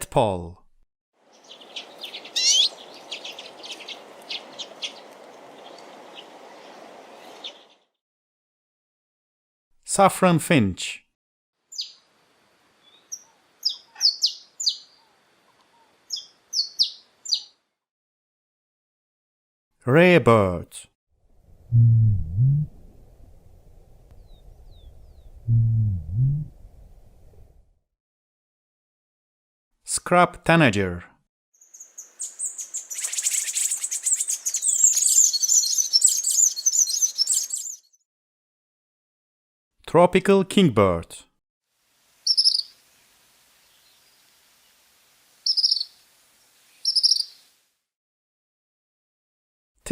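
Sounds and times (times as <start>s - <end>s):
bird twittering chatter: 1.4s - 6.3s, 12.9s - 15.1s, 16.1s - 17.5s, 31.6s - 37.9s, 42.2s - 42.7s, 45.5s - 45.9s, 46.8s - 47.4s
finch chirping: 1.4s - 6.3s, 12.8s - 15.1s, 16.1s - 17.5s, 31.6s - 37.9s, 42.3s - 42.7s, 45.5s - 45.9s, 46.8s - 47.4s.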